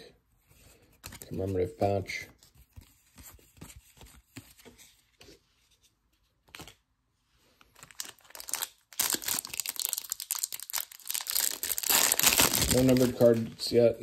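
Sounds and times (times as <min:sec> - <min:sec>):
plastic wrapper tearing and crinkling: 0:07.8 - 0:13.7.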